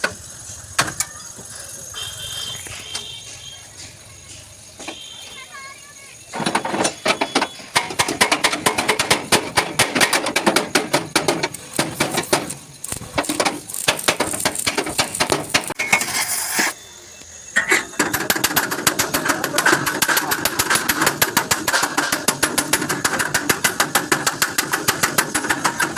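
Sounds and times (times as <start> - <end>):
hammer striking sheet metal: 6.4 - 12.6, 13.2 - 16.1, 18.0 - 25.9.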